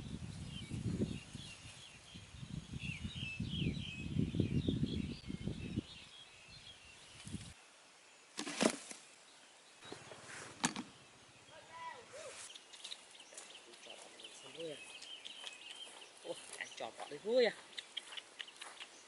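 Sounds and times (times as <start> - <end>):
birds chirping: 0.0 - 8.4, 9.1 - 19.0
sharp rustle or knock: 8.4 - 9.0, 10.4 - 10.9.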